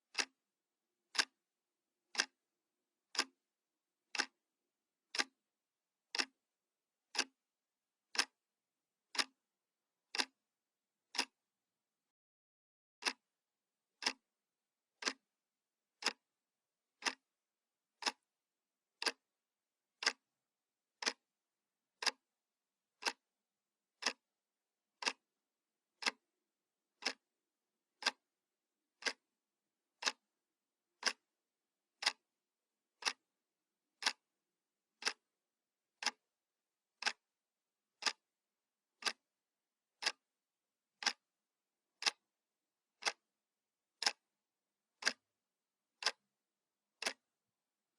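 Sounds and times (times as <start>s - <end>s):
clock ticking: 0.1s - 0.4s, 1.1s - 1.4s, 2.1s - 2.4s, 3.1s - 3.4s, 4.1s - 4.4s, 5.1s - 5.4s, 6.1s - 6.4s, 7.1s - 7.4s, 8.1s - 8.4s, 9.1s - 9.4s, 10.1s - 10.4s, 11.1s - 11.4s, 13.0s - 13.3s, 14.0s - 14.2s, 15.0s - 15.2s, 16.0s - 16.2s, 17.0s - 17.2s, 18.0s - 18.2s, 19.0s - 19.2s, 20.0s - 20.2s, 21.0s - 21.2s, 22.0s - 22.3s, 23.0s - 23.2s, 24.0s - 24.2s, 25.0s - 25.2s, 26.0s - 26.2s, 27.0s - 27.2s, 28.0s - 28.2s, 29.0s - 29.2s, 30.0s - 30.2s, 31.0s - 31.3s, 32.0s - 32.2s, 33.0s - 33.2s, 34.0s - 34.3s, 35.0s - 35.3s, 36.0s - 36.2s, 37.0s - 37.2s, 38.0s - 38.2s, 39.0s - 39.2s, 40.0s - 40.2s, 41.0s - 41.2s, 42.0s - 42.3s, 43.0s - 43.2s, 44.0s - 44.3s, 45.0s - 45.2s, 46.0s - 46.2s, 47.0s - 47.3s.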